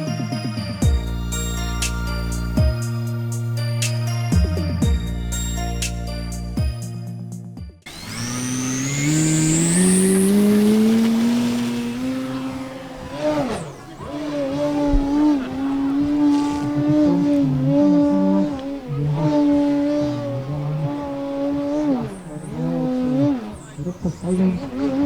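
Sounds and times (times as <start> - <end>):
music: 0.0 - 7.9
model plane motor whine: 7.9 - 25.0.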